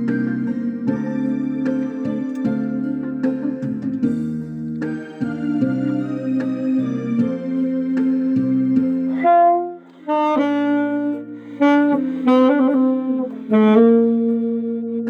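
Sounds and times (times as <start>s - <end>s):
keyboard chords: 0.0s - 15.0s
saxophone playing slow melody: 4.9s - 15.0s.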